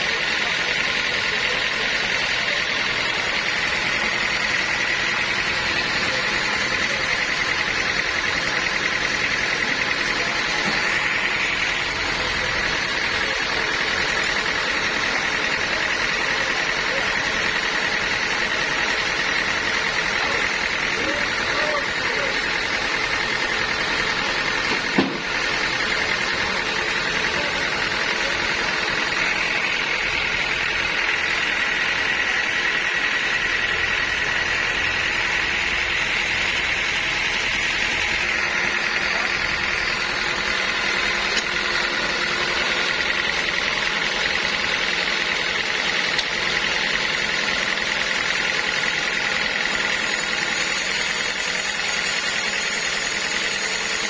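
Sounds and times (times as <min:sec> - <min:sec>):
high machine whine: 0:00.0 - 0:54.0
sawmill machinery running: 0:00.0 - 0:54.0
sharp knock: 0:24.7 - 0:25.3.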